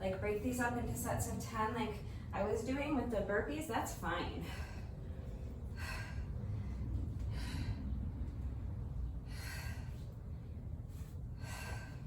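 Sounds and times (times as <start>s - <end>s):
woman breathing hard: 4.4s - 12.0s.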